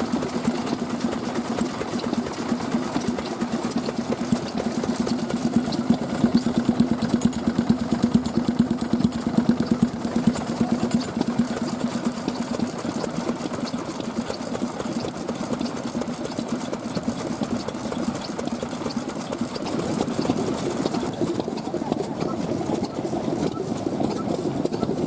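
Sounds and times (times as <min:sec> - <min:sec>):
stationary engine running: 0:00.0 - 0:25.0.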